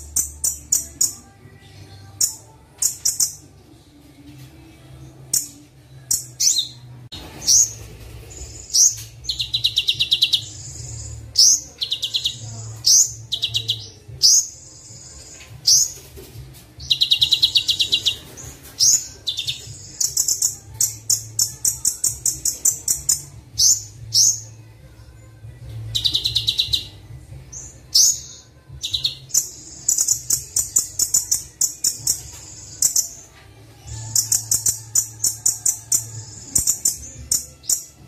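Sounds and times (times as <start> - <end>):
sunbird chirping and trilling: 7.4 - 16.0, 25.9 - 27.0.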